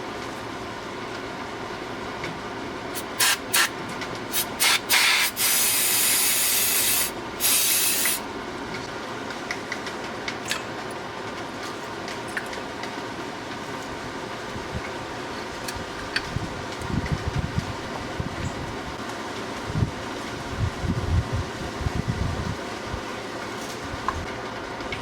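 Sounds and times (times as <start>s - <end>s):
pressurized spray hissing: 3.0s - 3.7s, 4.3s - 8.2s.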